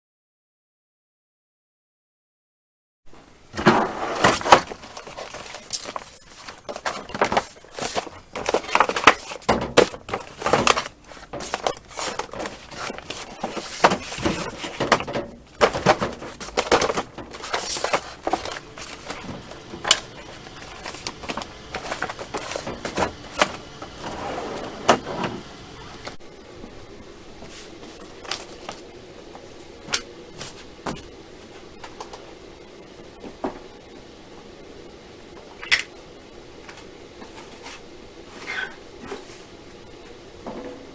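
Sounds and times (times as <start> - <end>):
handling clicks taps and rustling: 4.2 - 24.2.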